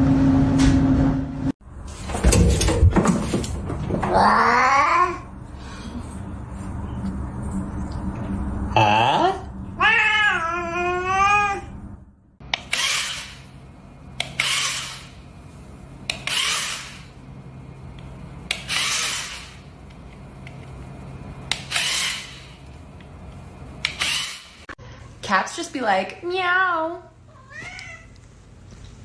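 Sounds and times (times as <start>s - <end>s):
cat meowing: 27.3s - 28.2s.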